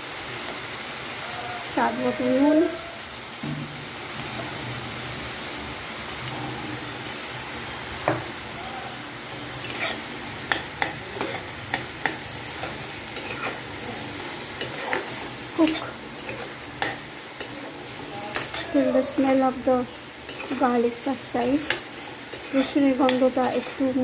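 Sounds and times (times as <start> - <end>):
food sizzling in a wok: 0.0 - 24.0
spatula scraping pan: 9.6 - 24.0.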